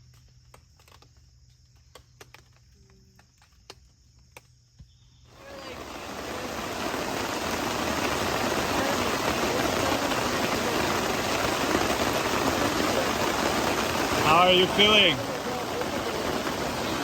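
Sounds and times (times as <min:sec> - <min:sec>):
crickets chirping: 0:00.0 - 0:17.0
heavy rain: 0:05.3 - 0:17.0.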